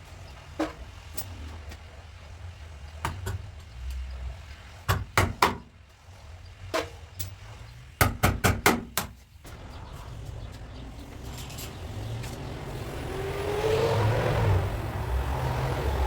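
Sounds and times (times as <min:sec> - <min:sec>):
hammer on sheet metal: 0:08.0 - 0:09.2.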